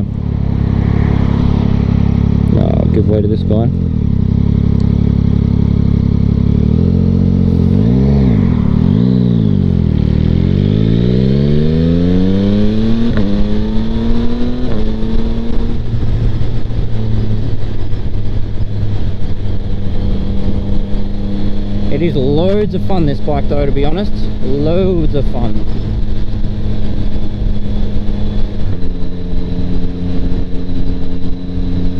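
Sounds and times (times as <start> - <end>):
motorcycle engine accelerating: 0.0 - 31.9
wind noise: 7.0 - 31.9.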